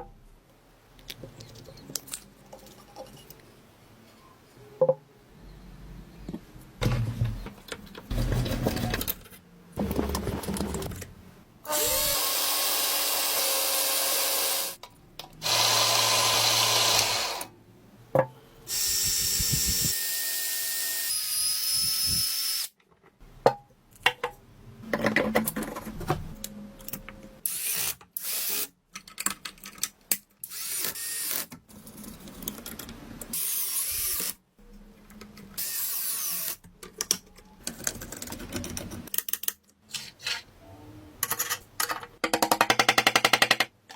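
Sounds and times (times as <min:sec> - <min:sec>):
power tool running: 0:15.4 - 0:17.5.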